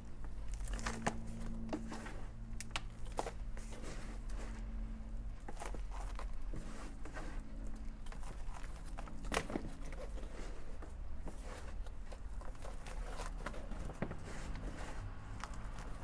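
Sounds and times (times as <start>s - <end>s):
low steady hum: 0.0s - 16.0s
hands rustling through soil and leaves: 0.1s - 16.0s
loud crunch: 0.3s - 4.8s.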